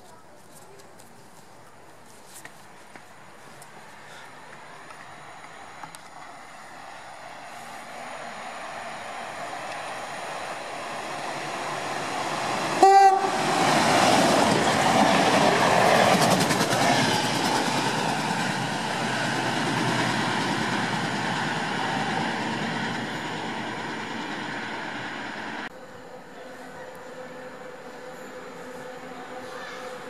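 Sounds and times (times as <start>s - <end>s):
railcar engine passing: 3.3s - 30.0s
train horn: 12.8s - 13.6s.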